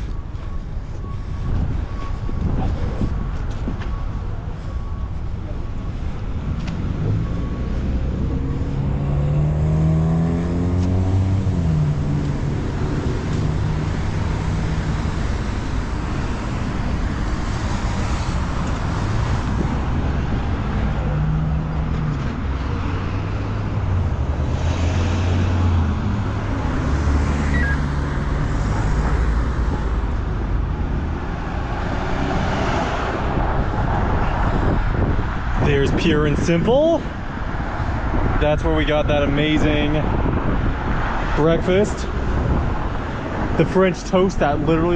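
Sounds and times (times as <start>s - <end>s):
vehicle engines running: 0.0s - 44.9s
engine speeding up: 6.4s - 35.5s.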